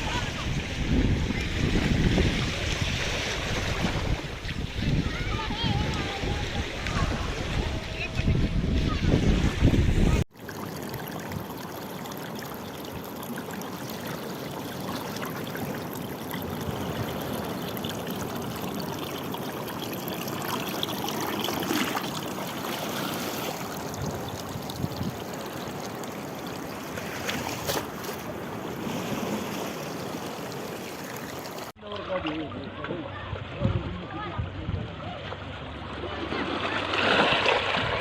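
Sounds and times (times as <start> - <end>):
sea water rushing: 0.0 - 34.4, 35.0 - 38.0
small water splashes: 10.3 - 34.3, 34.9 - 38.0.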